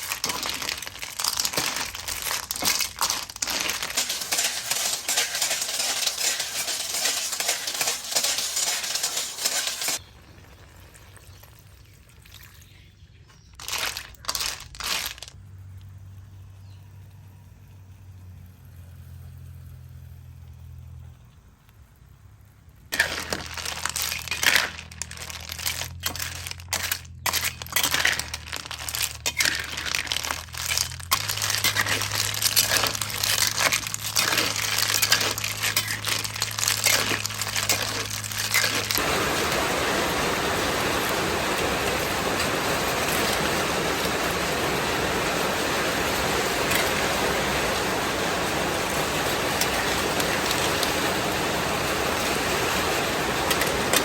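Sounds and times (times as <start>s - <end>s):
kitchen clicks and clatter: 0.0s - 10.0s, 23.0s - 39.0s
food crackling and sizzling: 0.0s - 12.3s, 13.5s - 16.1s, 22.8s - 54.0s.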